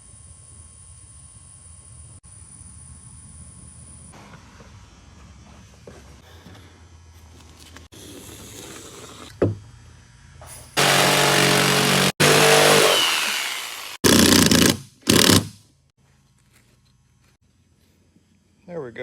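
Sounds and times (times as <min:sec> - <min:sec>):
power tool motor running: 0:10.8 - 0:15.5.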